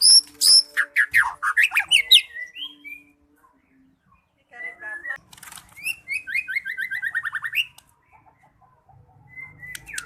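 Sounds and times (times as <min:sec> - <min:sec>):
bird singing whistled notes: 0:00.0 - 0:05.2, 0:05.8 - 0:07.8, 0:09.2 - 0:10.0.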